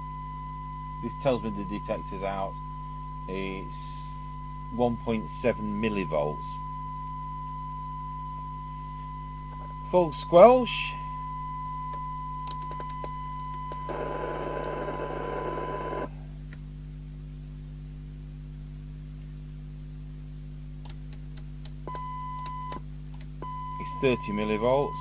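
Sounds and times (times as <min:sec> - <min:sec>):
low steady hum: 0:00.0 - 0:25.0
radio hiss: 0:13.9 - 0:16.1
radio test tone: 0:13.9 - 0:16.1, 0:23.8 - 0:25.0.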